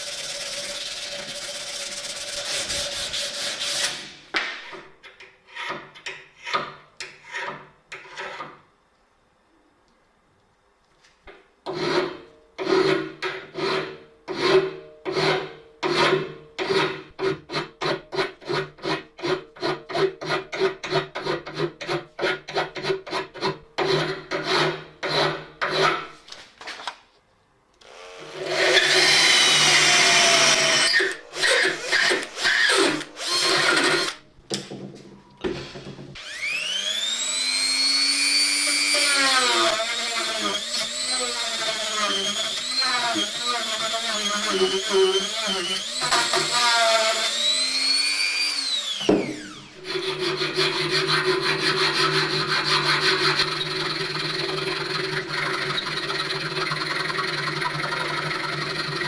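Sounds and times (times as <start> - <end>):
loud power tool: 27.8 - 34.2, 35.4 - 59.0.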